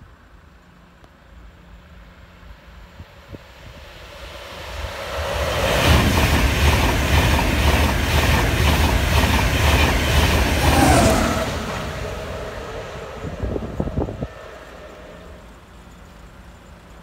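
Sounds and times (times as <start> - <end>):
train passing at speed: 0.0 - 17.0
wheels clickety-clack on rail: 4.9 - 15.0.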